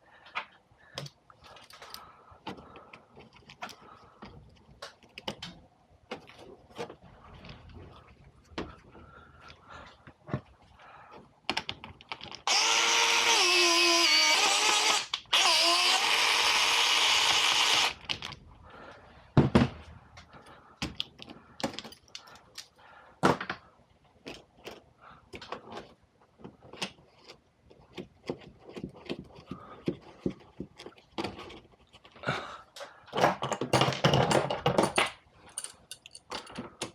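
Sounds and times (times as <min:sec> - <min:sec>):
electric flaring tool motor: 0:12.5 - 0:18.0
tools clicking and knocking: 0:33.1 - 0:36.9.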